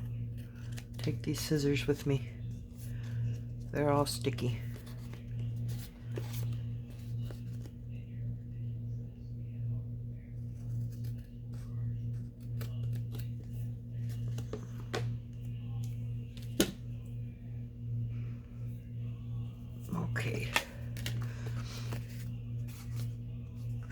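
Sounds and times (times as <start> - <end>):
steady low hum: 0.0 - 23.9
paper rustling: 4.6 - 7.8, 20.4 - 23.9
scissors snipping paper: 10.8 - 13.4.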